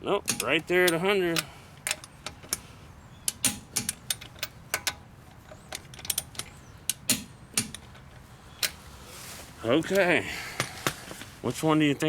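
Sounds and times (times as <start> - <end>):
hand tools and metal parts clicking: 0.2 - 8.8.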